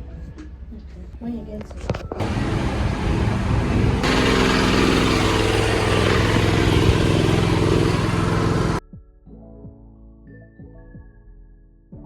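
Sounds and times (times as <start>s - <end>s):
engine running loudly: 2.2s - 8.8s.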